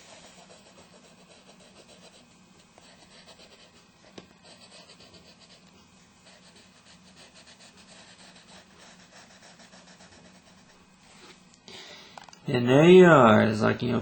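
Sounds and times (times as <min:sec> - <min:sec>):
pencil scratching on paper: 0:00.0 - 0:10.8.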